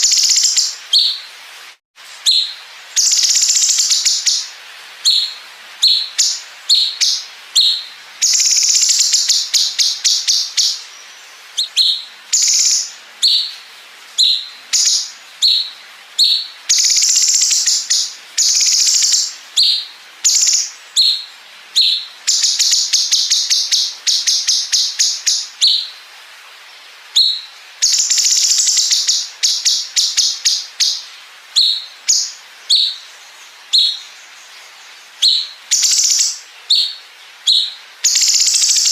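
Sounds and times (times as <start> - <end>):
songbird sharp chirps: 2.1 - 13.6, 14.2 - 25.9, 27.2 - 38.9.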